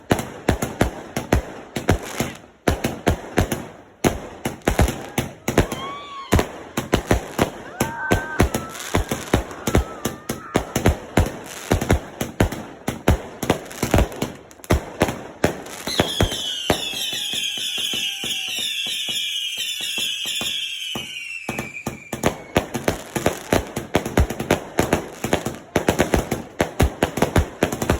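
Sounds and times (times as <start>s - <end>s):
fireworks bangs: 0.0s - 27.9s
fireworks whistling: 4.8s - 12.5s, 15.5s - 23.6s.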